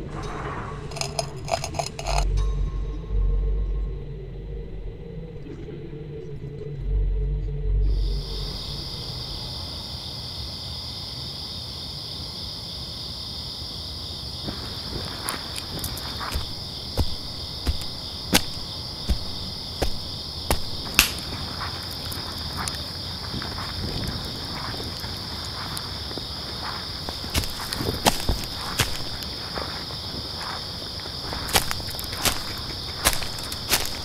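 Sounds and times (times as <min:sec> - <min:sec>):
low rumble: 0:00.0 - 0:09.5
crickets chirping: 0:00.0 - 0:34.0
sharp footsteps: 0:14.4 - 0:34.0
twig snapping: 0:15.0 - 0:23.7, 0:27.0 - 0:29.7, 0:31.3 - 0:34.0.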